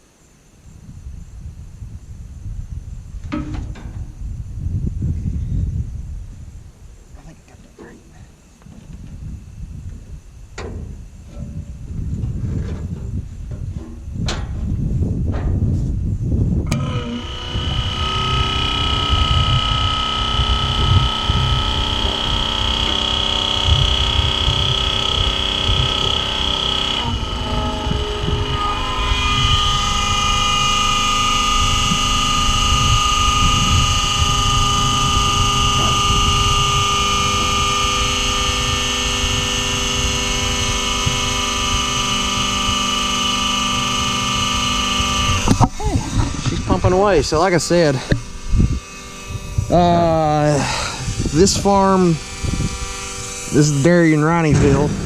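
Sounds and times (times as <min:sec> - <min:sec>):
grain auger whine: 0:10.6 - 0:55.0
diesel engine running: 0:16.6 - 0:55.0.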